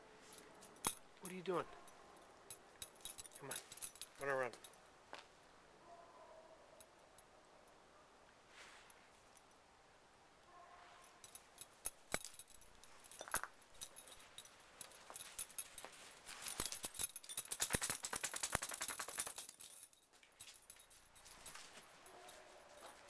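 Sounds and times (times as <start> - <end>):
dog collar tags jangling: 0.2 - 5.0, 11.1 - 23.0.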